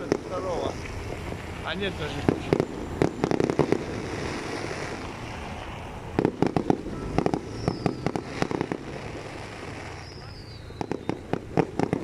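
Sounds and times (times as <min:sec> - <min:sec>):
fireworks cracking bangs: 0:00.0 - 0:12.0.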